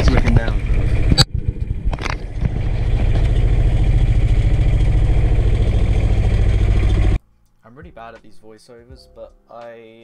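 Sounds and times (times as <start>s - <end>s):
boat engine running: 0.0s - 7.2s.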